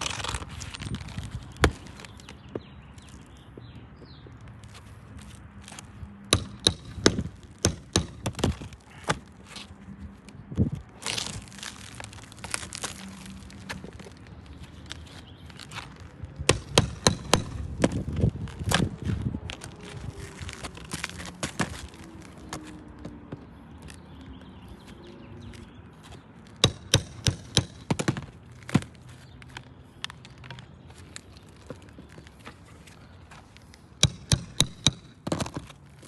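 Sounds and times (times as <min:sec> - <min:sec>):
scraping and crinkling: 0:00.0 - 0:03.4, 0:08.4 - 0:16.4, 0:17.6 - 0:23.1
nails prying from shingles: 0:05.7 - 0:09.4, 0:15.6 - 0:19.0, 0:20.5 - 0:22.0, 0:26.6 - 0:29.0, 0:34.0 - 0:35.8.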